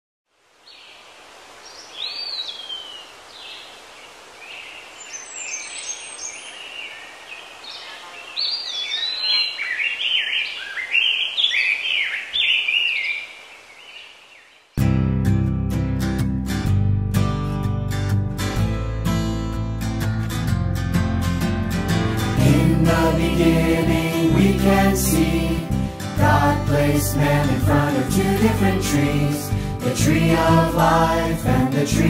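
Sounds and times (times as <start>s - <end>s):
steady outdoor hiss: 0.3s - 14.9s, 21.3s - 32.0s
small birds chirping: 0.7s - 14.8s
acoustic guitar music: 14.8s - 32.0s.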